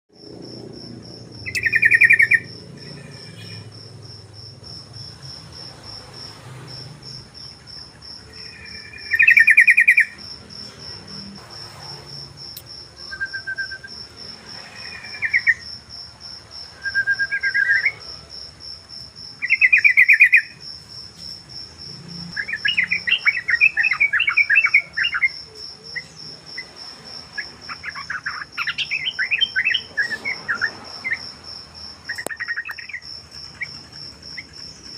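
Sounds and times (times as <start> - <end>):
high insect trill: 0.1 - 34.9
bulbul singing: 1.3 - 5.3, 7.2 - 11.2, 19.4 - 20.6, 22.4 - 26.7, 27.4 - 34.9.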